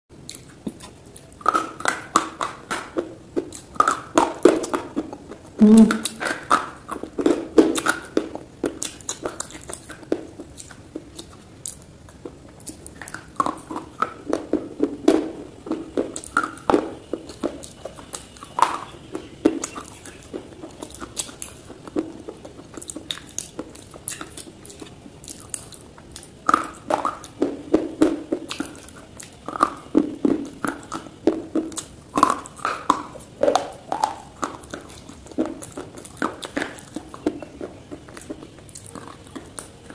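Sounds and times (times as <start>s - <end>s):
chewing: 0.2s - 39.9s.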